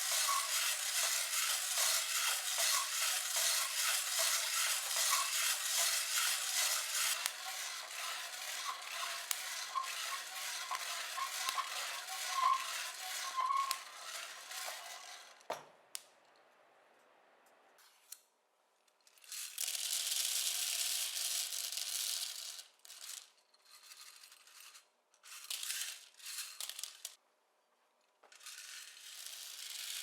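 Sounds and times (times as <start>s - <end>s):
coffee beans rattling in a pan: 0.0s - 15.2s.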